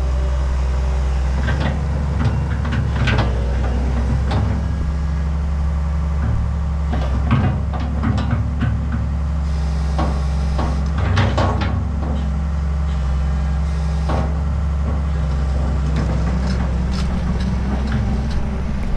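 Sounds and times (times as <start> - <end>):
excavator diesel engine running: 0.0 - 18.9
metal knocks and clanks: 1.4 - 5.0, 6.1 - 9.2, 10.0 - 13.1, 14.1 - 18.9.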